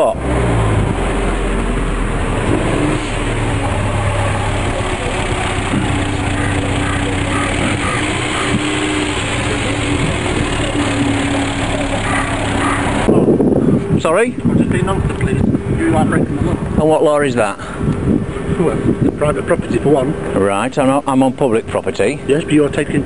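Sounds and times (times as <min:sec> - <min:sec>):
car engine running: 0:00.0 - 0:20.5
dense background noise: 0:00.0 - 0:23.0.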